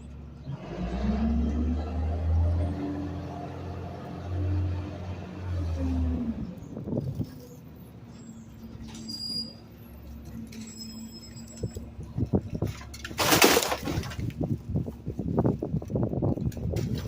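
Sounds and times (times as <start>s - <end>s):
trash crackling and crunching: 10.1s - 17.0s.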